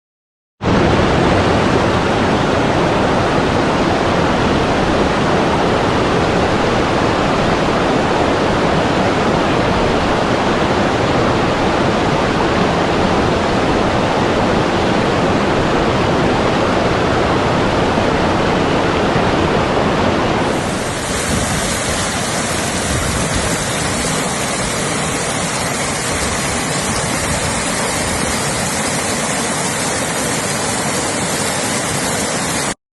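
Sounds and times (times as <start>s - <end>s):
rushing water hiss: 20.4s - 32.8s.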